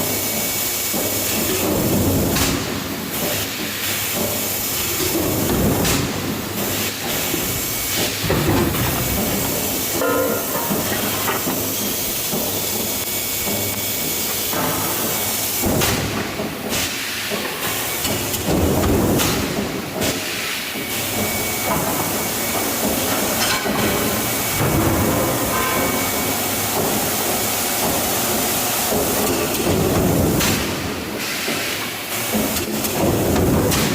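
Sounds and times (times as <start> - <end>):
mechanical rumbling and clatter: 0.9 - 20.2
forging press hissing: 3.3 - 18.4.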